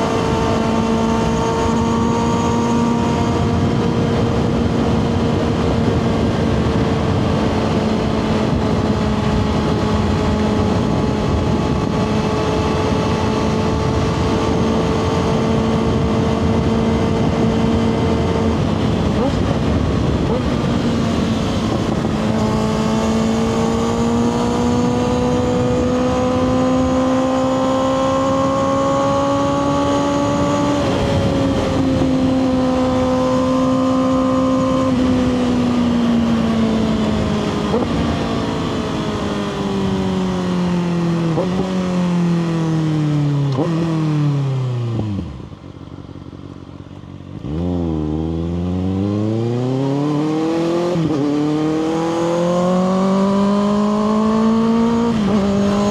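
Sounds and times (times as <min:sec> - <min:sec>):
motorcycle engine revving: 0:00.0 - 0:55.9
motorcycle idling: 0:45.4 - 0:47.4.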